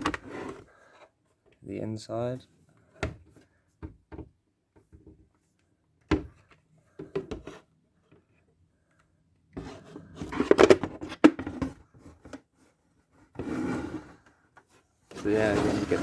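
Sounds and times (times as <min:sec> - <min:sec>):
plastic helmet rubbing and rattling: 0:00.0 - 0:00.7, 0:09.6 - 0:12.6, 0:13.3 - 0:16.0.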